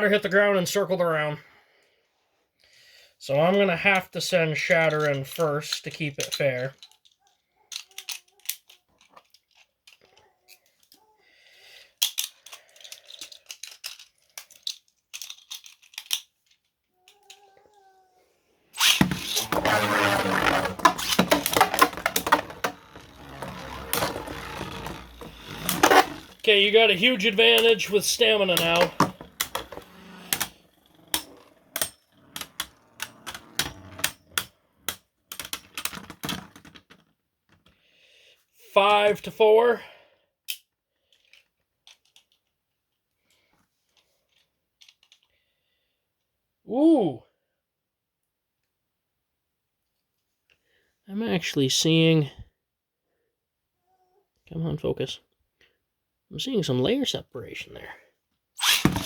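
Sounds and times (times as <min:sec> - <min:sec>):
spinning tops clacking and scraping: 0:18.8 - 0:37.0, 0:58.6 - 0:59.0
launcher whirring: 0:58.6 - 0:59.0.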